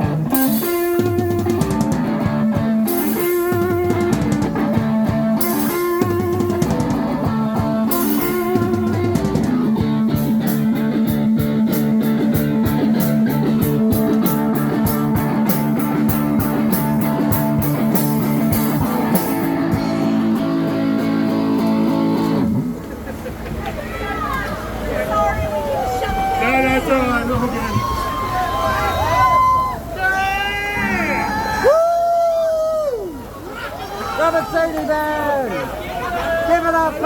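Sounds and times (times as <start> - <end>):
live rock band playing: 0.0 - 23.0
cymbals struck in a beat: 0.2 - 7.2, 7.8 - 9.6, 12.4 - 19.9.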